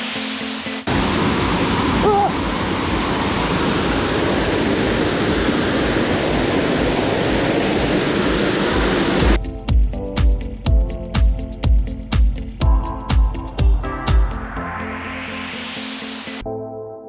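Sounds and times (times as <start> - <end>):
waterfall roaring: 0.9 - 9.4.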